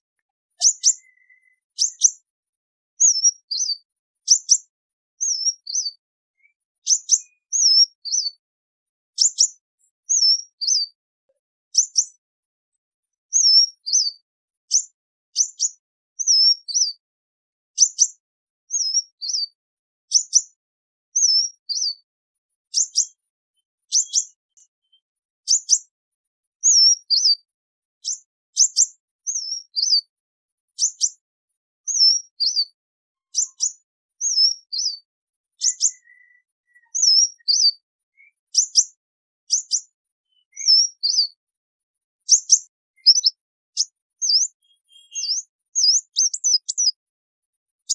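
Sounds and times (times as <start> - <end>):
sunbird high thin calls: 43.0 - 47.0.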